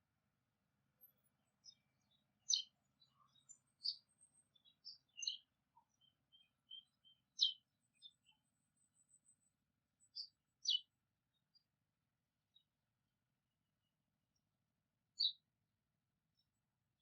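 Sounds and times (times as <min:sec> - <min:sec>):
small birds chirping: 0:01.0 - 0:11.8, 0:12.4 - 0:12.8, 0:14.3 - 0:15.6, 0:16.2 - 0:17.0.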